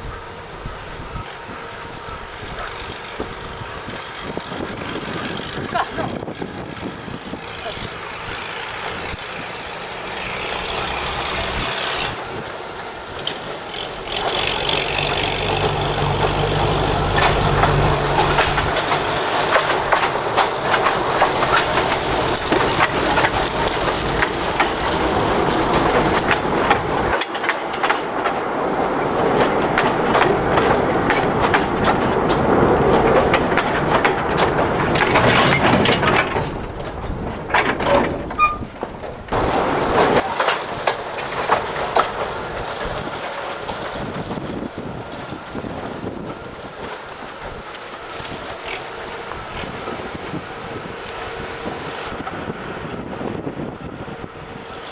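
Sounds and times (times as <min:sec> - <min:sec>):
low engine hum: 0:00.0 - 0:27.2
train wagons clattering over rails: 0:00.0 - 0:54.9.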